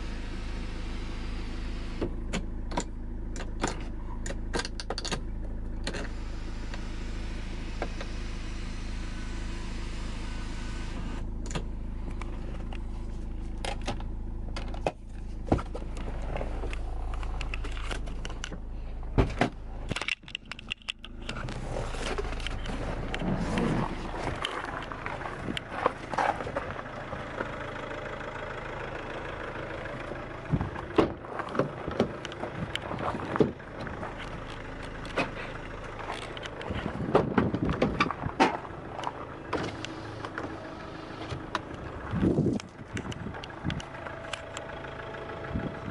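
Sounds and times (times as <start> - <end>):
car engine idling: 0.0 - 45.9
clicks and knocks of handling: 19.2 - 26.7.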